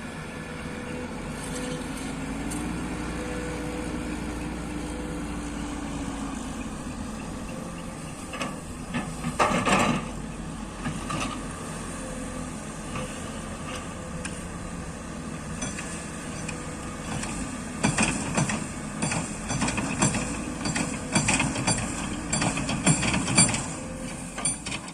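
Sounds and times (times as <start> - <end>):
excavator diesel engine running: 0.0 - 24.9
metal clanks: 6.6 - 10.2, 15.5 - 24.9.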